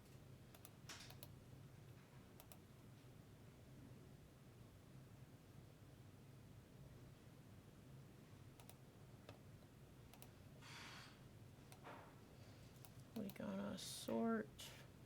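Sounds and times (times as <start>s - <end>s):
computer mouse clicking: 0.5s - 1.4s, 2.4s - 2.6s, 8.6s - 9.4s, 10.1s - 10.4s, 11.7s - 11.9s, 12.8s - 13.4s.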